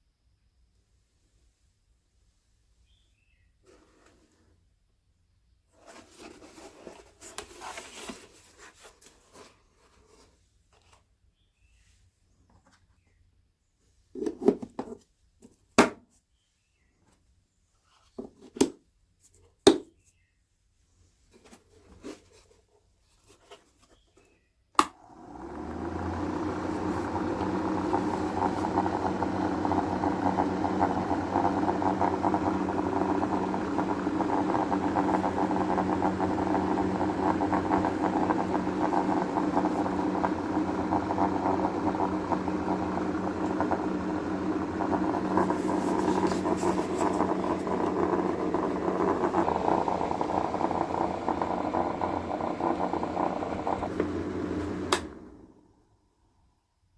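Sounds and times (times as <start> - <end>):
small electric motor humming: 25.0 - 55.5.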